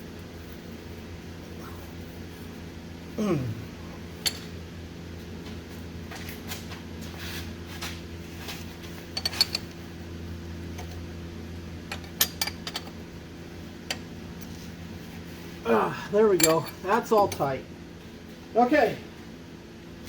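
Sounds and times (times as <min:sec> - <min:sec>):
steady low hum: 0:00.0 - 0:20.0
wrench clinking against metal: 0:16.4 - 0:17.5.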